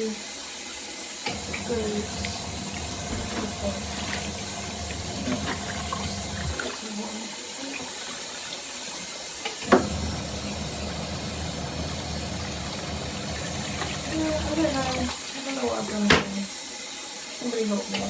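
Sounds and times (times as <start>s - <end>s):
washing machine motor hum: 1.2s - 16.5s
water swishing: 1.4s - 9.1s.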